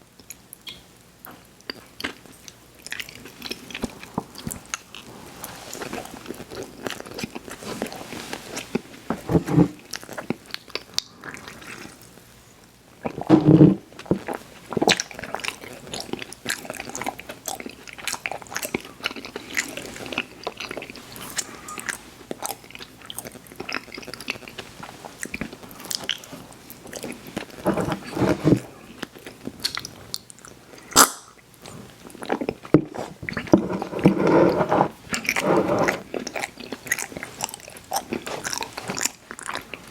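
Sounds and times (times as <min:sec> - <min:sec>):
chewing sweets: 0:01.6 - 0:05.1, 0:14.0 - 0:39.9.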